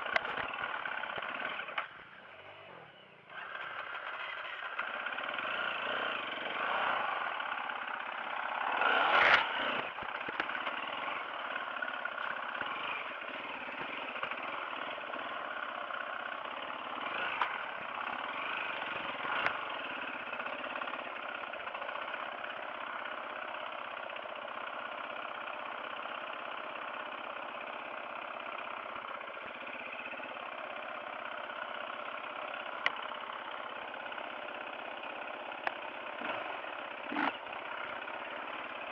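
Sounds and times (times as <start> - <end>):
off-road motorcycle engine: 0.0 - 38.9.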